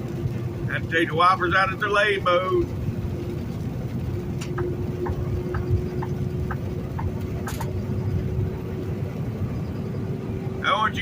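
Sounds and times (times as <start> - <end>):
road noise: 0.0 - 11.0
truck engine drone: 0.0 - 11.0
turn signal ticking: 3.2 - 8.4.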